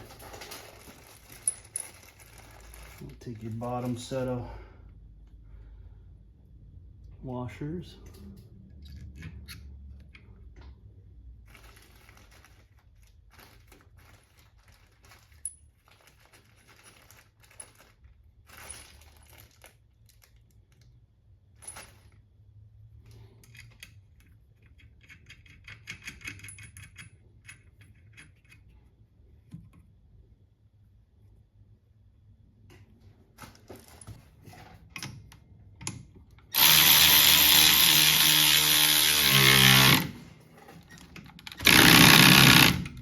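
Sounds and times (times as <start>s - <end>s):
small metal parts clinking: 0.0s - 3.1s, 11.5s - 20.9s, 21.5s - 22.3s.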